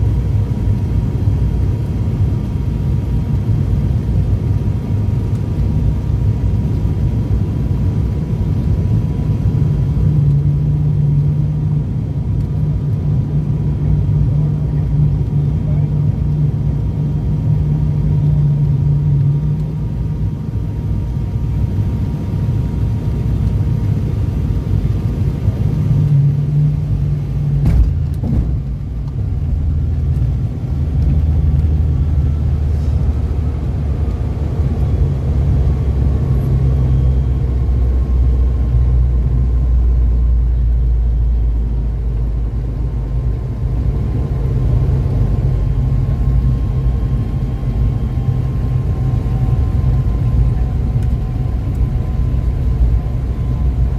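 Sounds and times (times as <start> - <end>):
turboprop engines droning: 0.0 - 53.9
short knock: 27.6 - 28.7.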